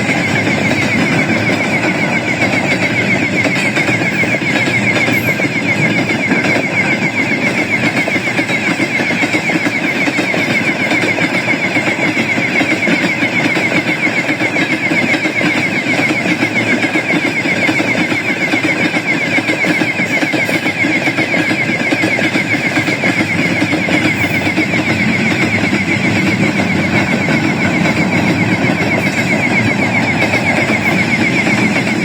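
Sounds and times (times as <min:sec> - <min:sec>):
train wheels rumbling on rails: 0:00.0 - 0:32.0
high whine: 0:23.0 - 0:32.0.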